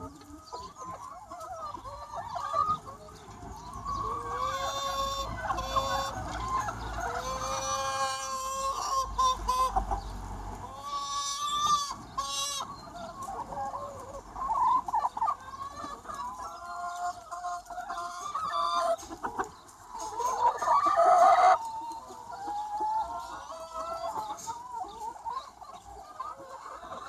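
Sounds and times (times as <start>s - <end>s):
chickens clucking and calling: 0.0s - 27.0s
long held chicken call: 4.0s - 19.4s.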